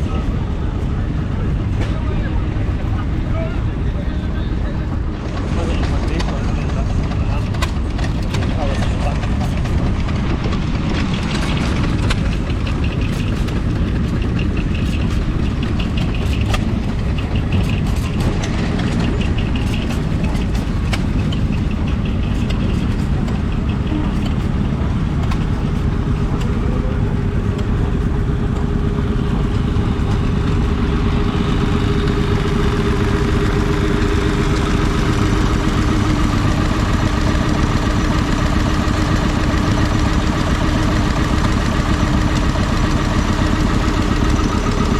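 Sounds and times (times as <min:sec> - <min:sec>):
stationary engine running: 0:00.0 - 0:44.9
clatter of sharp ticks: 0:05.4 - 0:26.5.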